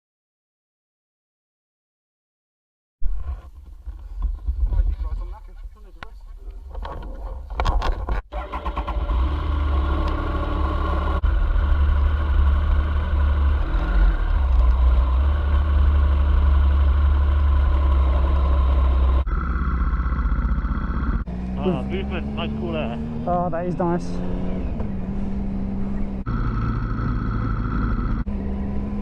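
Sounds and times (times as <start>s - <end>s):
deep wind rumble on microphone: 3.1s - 5.9s
motorcycle engine running: 9.0s - 29.0s.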